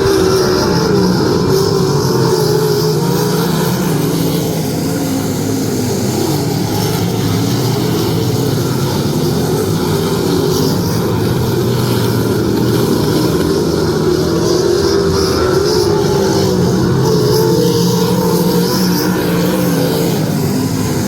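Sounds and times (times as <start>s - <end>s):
race car engines droning: 0.0s - 21.0s.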